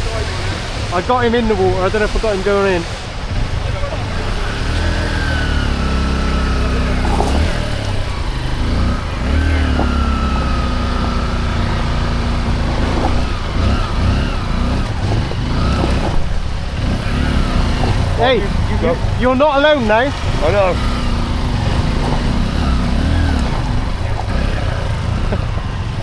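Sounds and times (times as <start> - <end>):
motorbike engine revving: 0.0 - 26.0.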